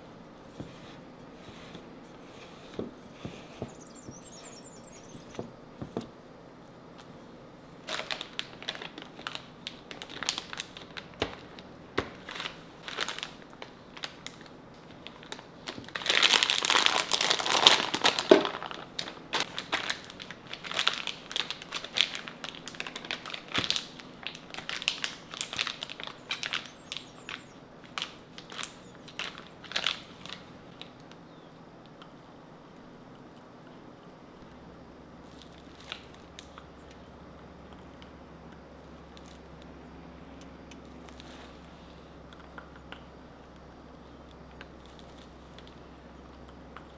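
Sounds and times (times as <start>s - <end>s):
crinkling and scraping clicks: 7.8s - 31.2s.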